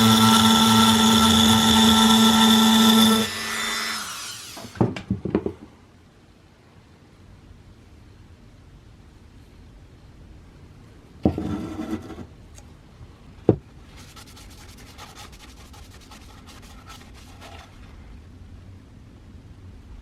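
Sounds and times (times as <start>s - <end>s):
hand rubbing and scraping: 13.8s - 18.2s.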